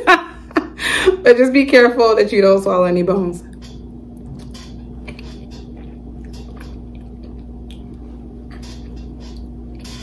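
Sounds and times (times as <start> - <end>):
steady low hum: 0.0 - 10.0
wet chewing clicks and smacks: 4.2 - 8.0.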